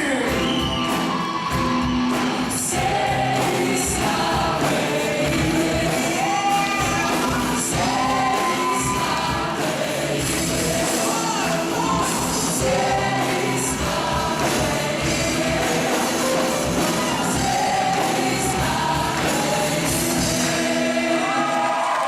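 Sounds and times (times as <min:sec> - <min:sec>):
band playing: 0:00.0 - 0:21.6
vocal ensemble singing: 0:00.0 - 0:22.0.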